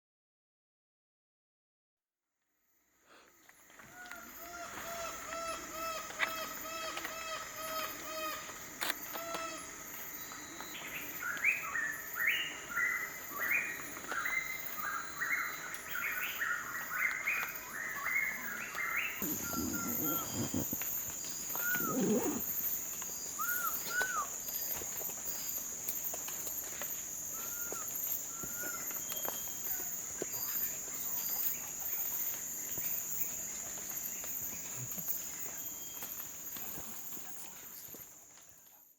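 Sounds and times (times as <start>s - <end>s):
high-pitched insect drone: 3.5s - 15.5s, 17.5s - 38.0s
bird calling: 19.0s - 22.7s, 23.4s - 24.4s.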